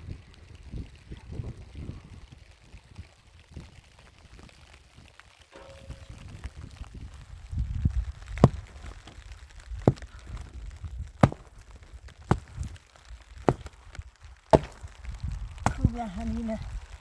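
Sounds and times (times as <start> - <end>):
wood being chopped: 8.2 - 16.2.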